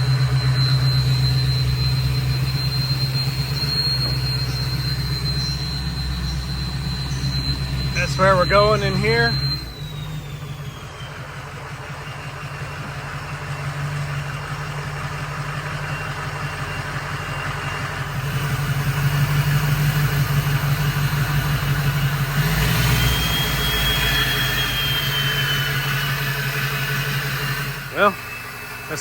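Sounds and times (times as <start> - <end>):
thin high whine: 0.0 - 11.0
diesel truck engine running: 0.0 - 29.0.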